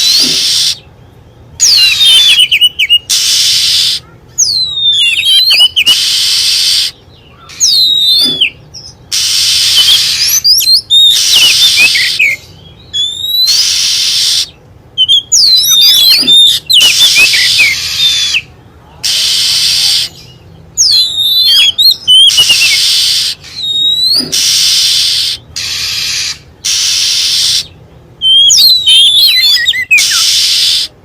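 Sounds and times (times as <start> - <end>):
bird singing whistles and trills: 0.0 - 30.9.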